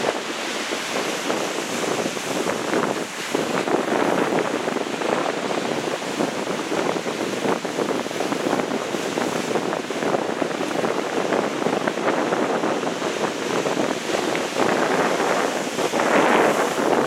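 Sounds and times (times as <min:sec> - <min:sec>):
ocean surf washing: 0:00.0 - 0:17.0
wind buffeting microphone: 0:00.0 - 0:17.0.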